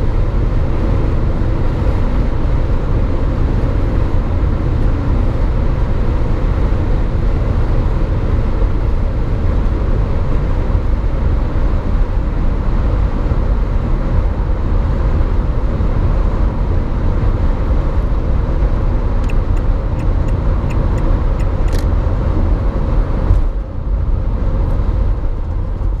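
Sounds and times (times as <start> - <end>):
van engine and road drone: 0.0 - 26.0.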